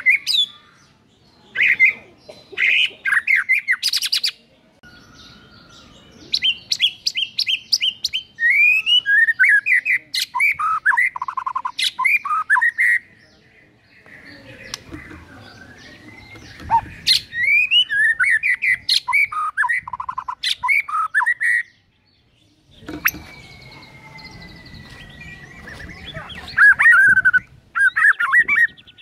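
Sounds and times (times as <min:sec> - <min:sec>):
bird singing whistled phrases: 0:03.1 - 0:13.1, 0:15.5 - 0:21.7, 0:22.8 - 0:29.0.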